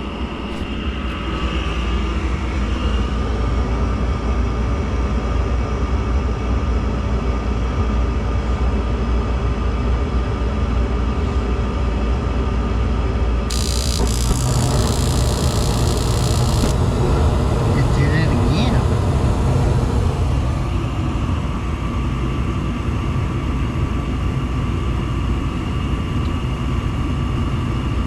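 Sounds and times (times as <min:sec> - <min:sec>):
gas furnace motor hum: 0:13.5 - 0:20.8.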